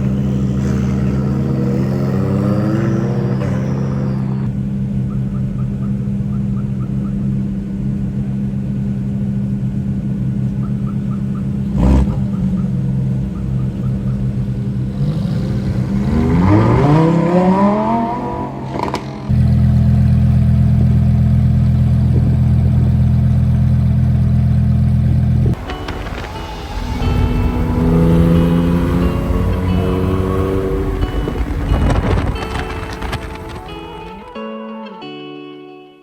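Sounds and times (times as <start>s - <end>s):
loud steady low drone: 0.0s - 6.4s, 12.8s - 34.0s
car engine idling and revving: 0.0s - 34.3s.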